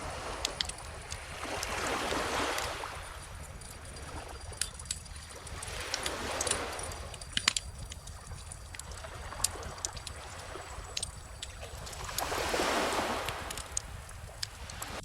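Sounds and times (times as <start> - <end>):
ocean waves washing ashore: 0.0 - 15.0
bonfire crackling and popping: 0.3 - 1.7, 4.4 - 15.0.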